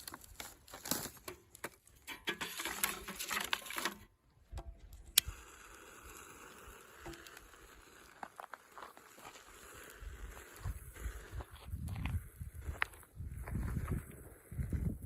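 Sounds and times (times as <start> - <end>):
campfire crackling: 4.8 - 13.4.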